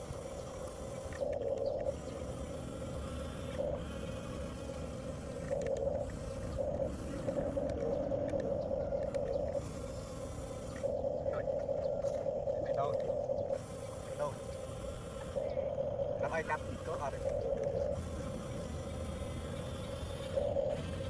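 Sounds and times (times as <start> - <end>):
electric motors and gearbox whining: 0.0 - 21.0
rough low noise: 0.0 - 21.0.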